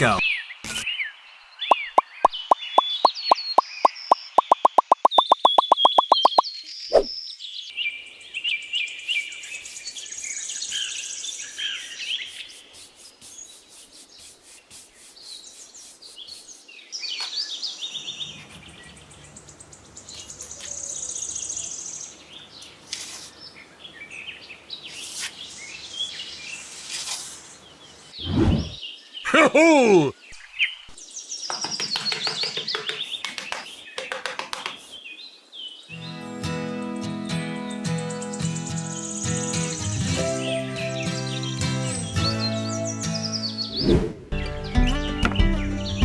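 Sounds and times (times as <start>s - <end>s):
sharp clicks: 1.7s - 6.4s
birds chirping and calling: 1.7s - 7.2s.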